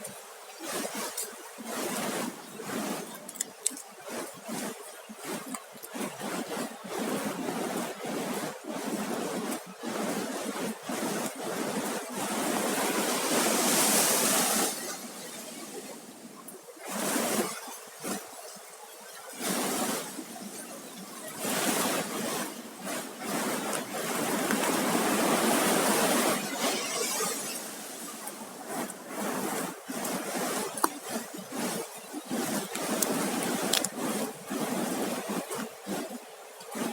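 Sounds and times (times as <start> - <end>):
surf breaking on shore: 8.4 - 18.3, 19.4 - 36.9.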